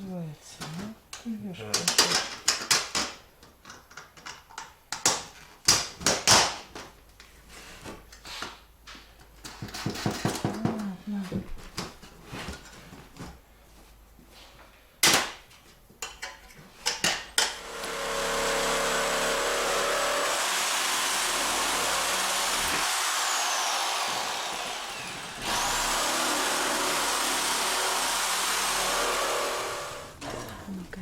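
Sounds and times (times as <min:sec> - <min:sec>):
power tool whining: 0:17.5 - 0:30.2.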